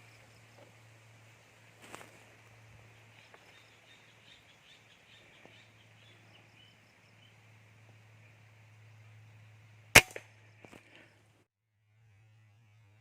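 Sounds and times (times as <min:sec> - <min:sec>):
steady low hum: 0:00.0 - 0:13.0
small birds chirping: 0:01.8 - 0:11.3.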